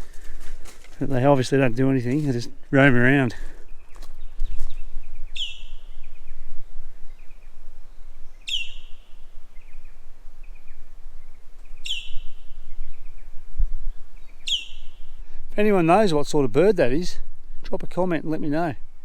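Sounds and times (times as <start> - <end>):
wind noise rumble: 0.0 - 17.8
faint bird chirps: 3.6 - 15.4
bird call with falling whistle: 8.4 - 9.0, 11.8 - 12.5, 14.4 - 15.0.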